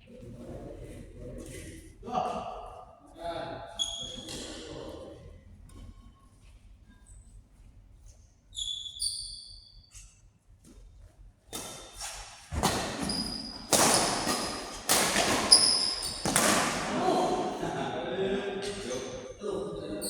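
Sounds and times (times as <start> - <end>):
shoes squeaking on court floor: 3.8 - 4.6, 8.5 - 10.8, 11.5 - 16.8
sharp hits and thuds echoing: 12.5 - 17.1.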